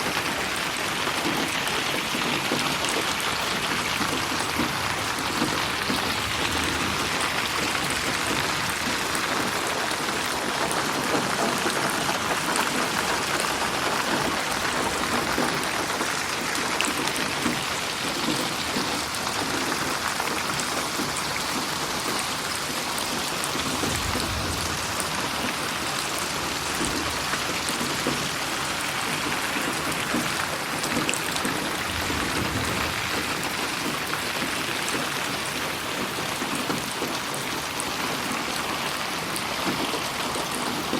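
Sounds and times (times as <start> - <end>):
steady rain falling: 0.0 - 40.9
faint low rumble: 23.8 - 25.9.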